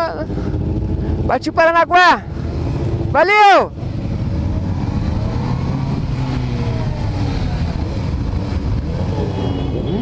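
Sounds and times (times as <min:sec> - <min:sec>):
motorcycle engine running: 0:03.8 - 0:10.0.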